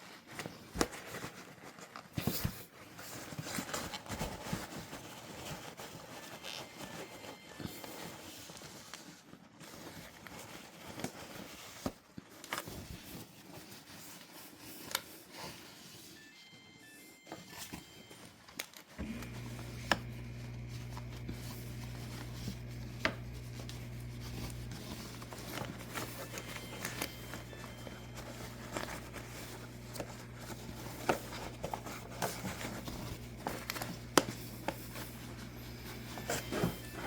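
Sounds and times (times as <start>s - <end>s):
paper towel rubbing and scraping: 19.0s - 37.0s.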